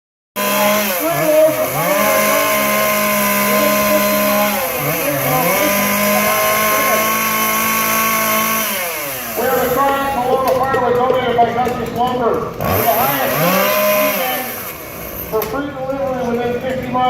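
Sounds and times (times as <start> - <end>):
chainsaw running at high revs: 0.4 - 17.0.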